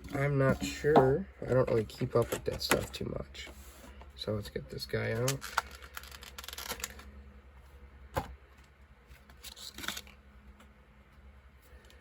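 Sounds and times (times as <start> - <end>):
packaging rustle: 5.1 - 7.1.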